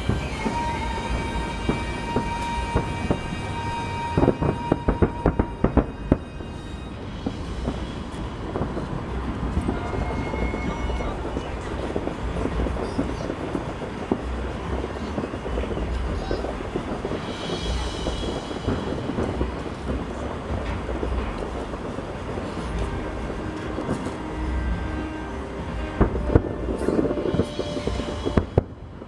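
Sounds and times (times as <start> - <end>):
distant fireworks booms and crackle: 0.0 - 29.0
firework bangs: 0.0 - 29.0
faint television music: 9.2 - 28.5.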